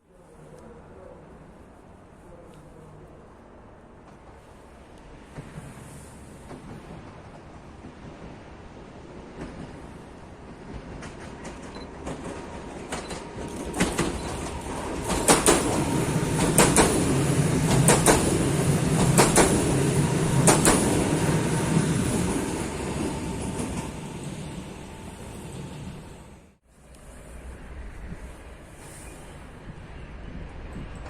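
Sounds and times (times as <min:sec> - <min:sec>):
electric train passing: 0:03.3 - 0:31.0
wheels clicking over rail joints: 0:09.3 - 0:19.8.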